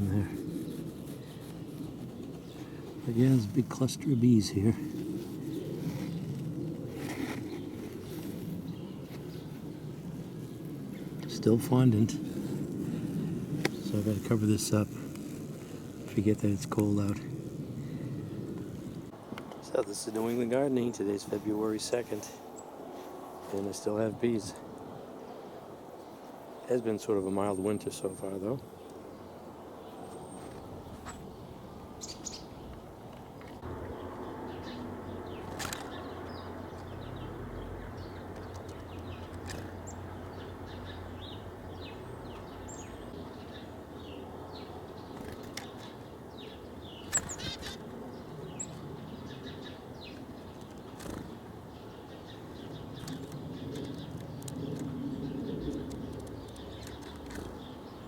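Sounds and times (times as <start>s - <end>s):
steady low rumble: 0.0s - 19.9s
small birds chirping: 0.0s - 58.0s.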